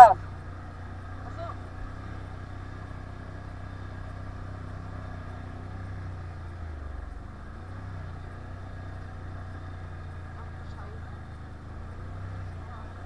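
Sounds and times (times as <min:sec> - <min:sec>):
quad engine running: 0:00.0 - 0:13.0.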